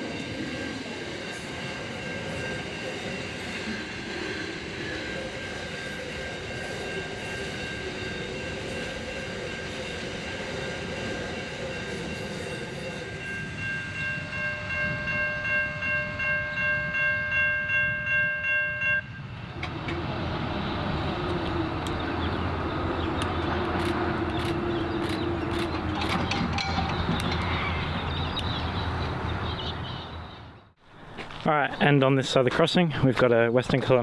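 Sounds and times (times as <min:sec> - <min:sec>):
train rumbling past: 0:00.0 - 0:32.5
level crossing bells ringing: 0:21.9 - 0:28.4.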